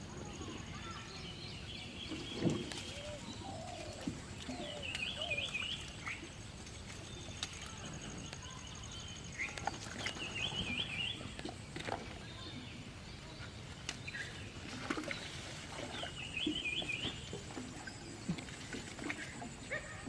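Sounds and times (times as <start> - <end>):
bird singing warbled phrase: 0.2 - 6.3.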